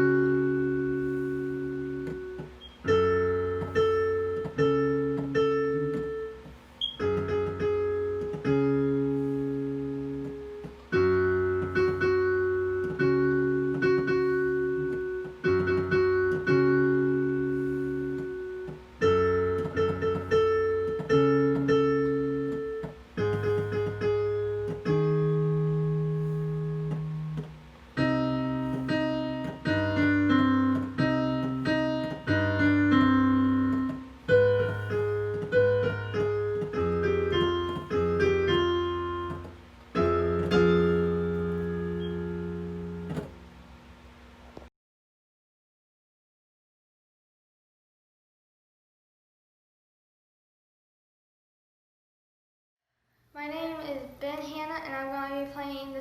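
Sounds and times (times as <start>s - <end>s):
solo piano: 0.0s - 44.7s.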